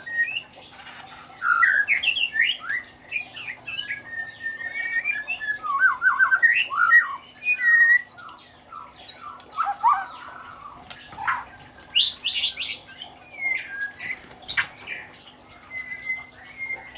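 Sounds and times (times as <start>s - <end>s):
bird singing whistled notes: 0.0s - 0.6s, 1.4s - 10.3s, 15.6s - 16.9s.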